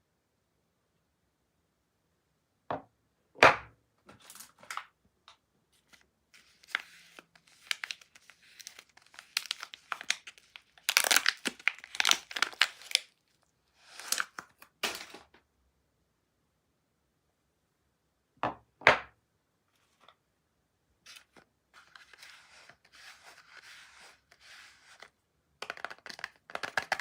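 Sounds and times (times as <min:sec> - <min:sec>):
wrapper crinkling and tearing: 0:05.9 - 0:15.2, 0:24.8 - 0:27.0.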